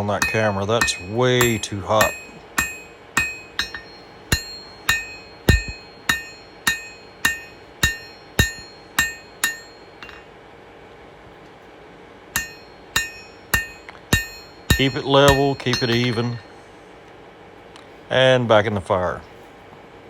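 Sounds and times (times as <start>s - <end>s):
hammer striking steel on anvil: 0.0s - 10.3s, 12.4s - 16.5s.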